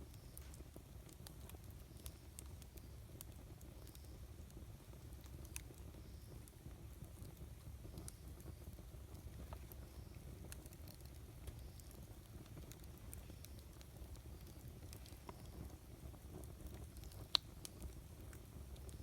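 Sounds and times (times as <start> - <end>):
burning wood popping: 0.0 - 19.0
campfire rumbling and crackling: 0.0 - 19.0.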